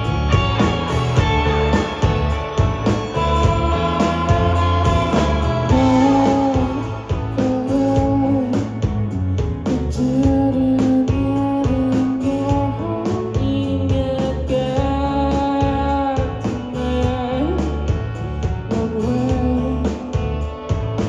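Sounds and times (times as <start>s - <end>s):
drum hits: 0.0s - 7.4s
electric guitar notes: 0.0s - 8.6s
bass guitar: 0.0s - 21.0s.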